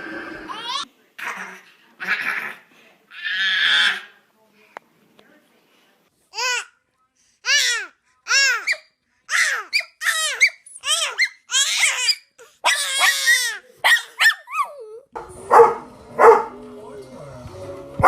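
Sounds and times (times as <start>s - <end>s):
baby squealing with laughter: 8.3s - 14.8s.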